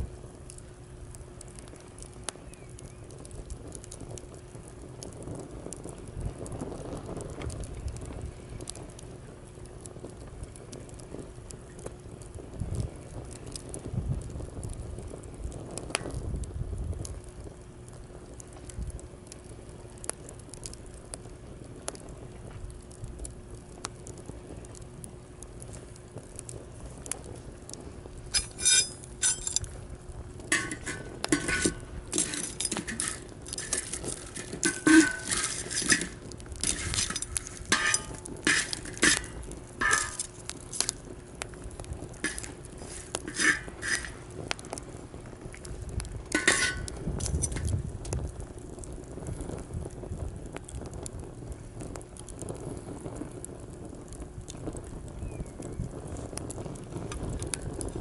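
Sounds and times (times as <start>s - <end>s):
campfire crackling: 0.0s - 58.0s
sharp metal clinks: 28.4s - 29.6s.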